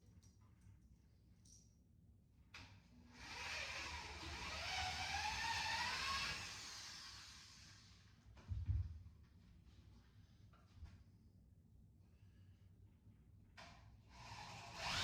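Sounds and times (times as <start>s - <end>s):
power drill whirring: 3.2s - 7.8s, 14.2s - 15.0s.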